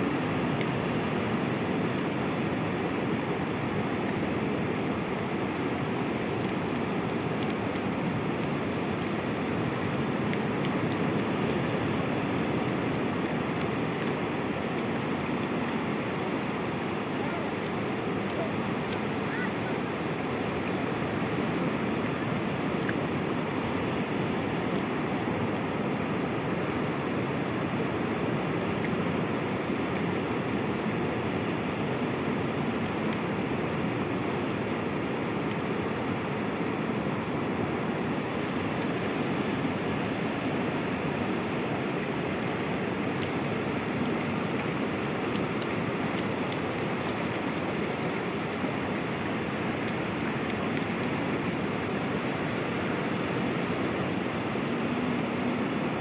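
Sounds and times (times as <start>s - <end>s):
waves breaking: 0.0s - 56.0s.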